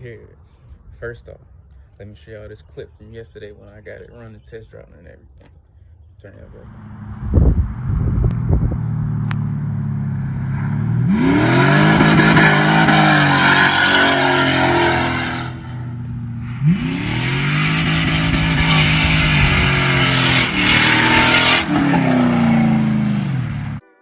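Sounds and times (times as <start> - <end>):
car engine revving: 6.5 - 23.8.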